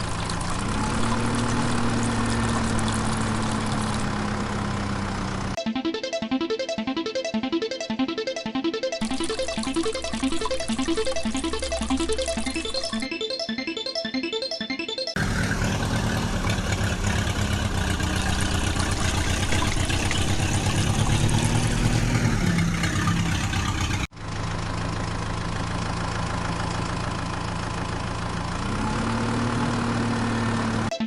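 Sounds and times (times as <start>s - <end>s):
heavy vehicle engine running: 0.0s - 5.6s, 15.2s - 30.9s
second engine rising in pitch: 0.5s - 25.6s, 26.2s - 31.0s.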